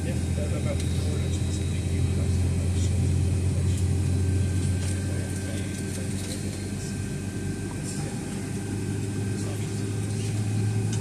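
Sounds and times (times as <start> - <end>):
aircraft cabin engine hum: 0.0 - 11.0.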